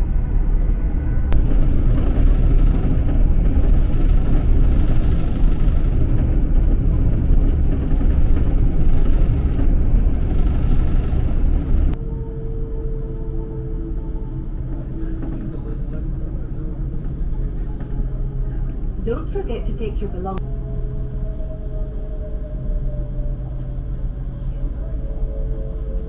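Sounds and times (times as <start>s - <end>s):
train wheels rumbling on track: 0.0s - 12.4s, 13.0s - 20.4s.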